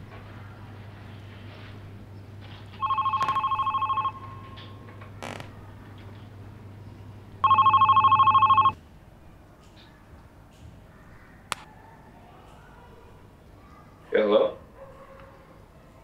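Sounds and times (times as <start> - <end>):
mobile phone ringing: 2.8 - 4.6, 7.4 - 8.8.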